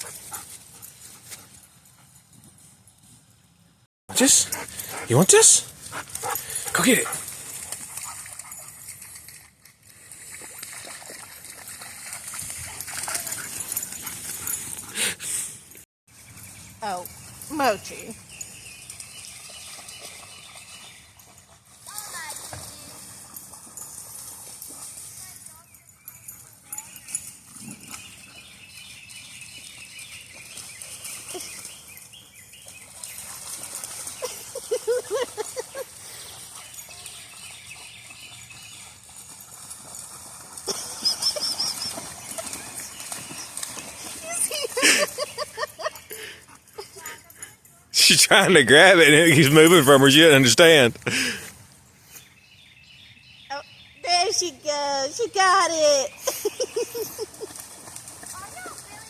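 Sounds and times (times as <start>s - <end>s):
dog splashing through water: 4.5s - 14.6s, 18.8s - 25.6s, 29.5s - 46.2s, 56.3s - 59.0s
small birds chirping: 16.2s - 21.5s, 24.6s - 39.4s, 40.7s - 50.6s, 52.0s - 59.0s.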